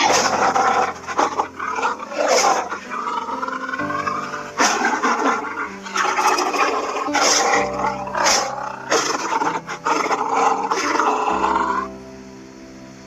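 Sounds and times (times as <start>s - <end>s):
lion roaring and growling: 0.0s - 12.0s
soft background music: 0.0s - 13.0s.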